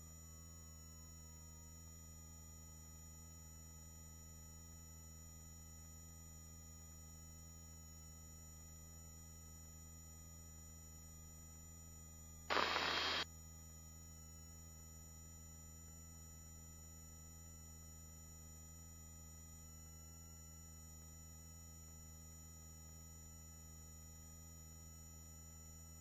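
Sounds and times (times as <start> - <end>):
faint steady tones: 12.5 - 13.2
helicopter hum through headset: 12.5 - 13.2
loud burst of hiss: 12.5 - 13.2.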